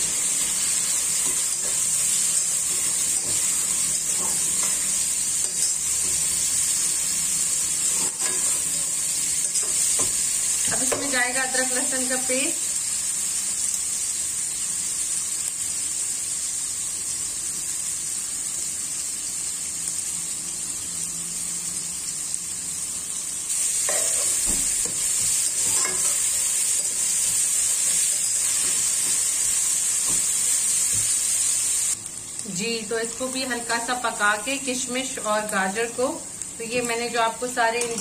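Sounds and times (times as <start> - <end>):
vegetables sizzling in hot oil: 0.0 - 38.0
metal spatula scraping a pot: 7.8 - 10.0, 25.4 - 29.2.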